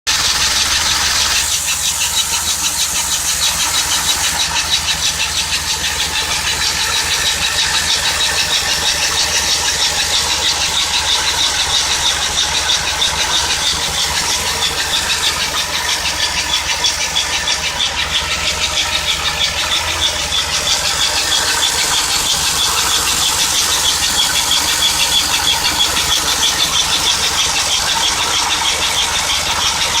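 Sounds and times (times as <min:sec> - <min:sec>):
engine running: 0:00.0 - 0:30.0
rapid high-pitched squeak: 0:00.1 - 0:30.0.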